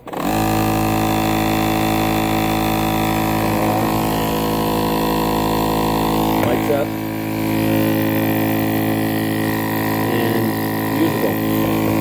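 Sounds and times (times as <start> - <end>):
compressor pump humming: 0.0 - 12.0.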